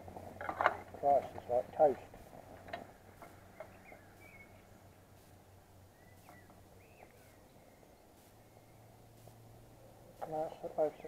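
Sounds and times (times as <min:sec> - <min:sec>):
faint low hum: 0:00.0 - 0:11.0
faint bird chirps: 0:03.4 - 0:05.1, 0:05.8 - 0:10.4.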